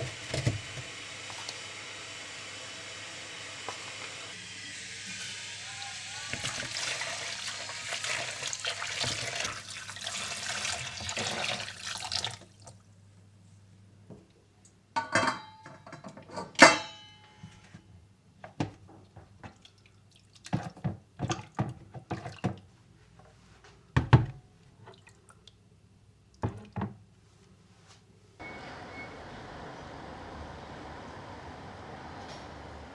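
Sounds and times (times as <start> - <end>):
tap water running into sink: 0.0 - 1.8, 6.3 - 12.5
dishes clinking and knocking: 15.0 - 17.0.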